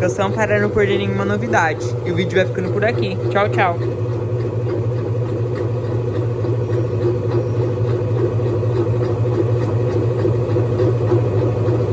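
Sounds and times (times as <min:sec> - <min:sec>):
faint regular ticking: 0:00.0 - 0:10.4
washing machine motor hum: 0:00.0 - 0:11.9.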